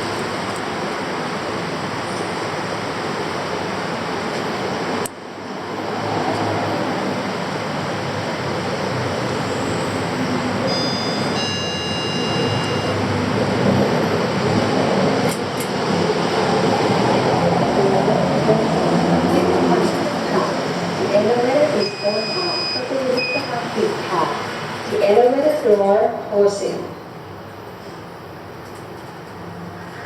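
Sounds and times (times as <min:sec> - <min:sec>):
city traffic din: 0:00.0 - 0:30.0
electronic beeping chime: 0:10.7 - 0:13.1.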